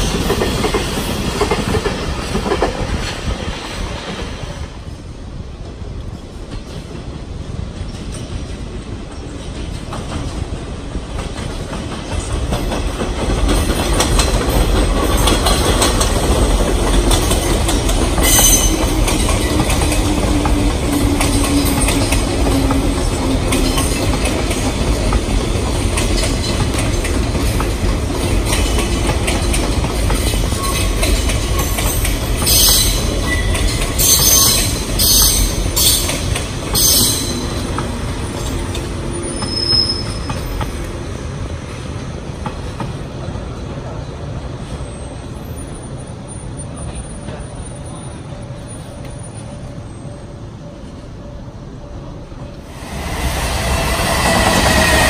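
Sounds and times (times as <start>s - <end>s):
rumble of train wheels on rail: 0.0s - 55.0s
wheel and brake screeches: 39.1s - 40.7s.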